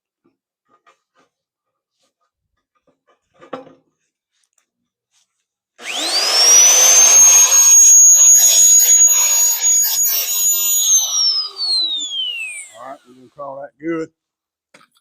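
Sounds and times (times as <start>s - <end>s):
power tool motor whine: 5.8s - 13.0s.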